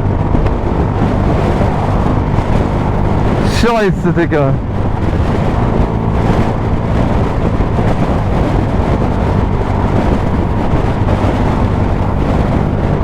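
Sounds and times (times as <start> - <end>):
wind noise on microphone: 0.0 - 13.0
motorcycle engine running: 4.6 - 13.0.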